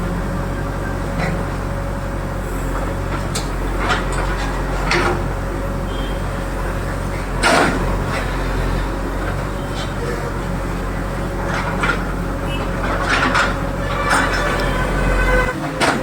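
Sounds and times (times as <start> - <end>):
diesel engine running: 0.0 - 16.0
metallic clanks and knocks: 3.1 - 5.4, 11.4 - 16.0.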